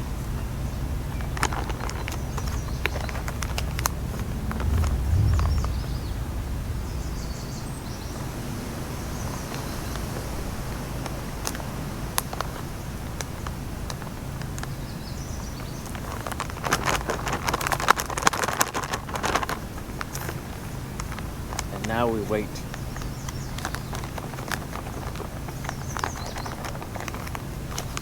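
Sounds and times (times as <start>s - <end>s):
steady low rumble: 0.0s - 10.8s
birds chirping: 0.0s - 11.0s, 21.7s - 27.1s.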